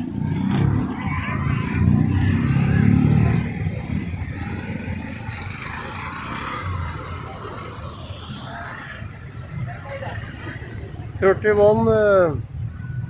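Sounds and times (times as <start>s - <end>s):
vehicle passing close: 0.0s - 9.4s
low traffic rumble: 0.0s - 13.0s.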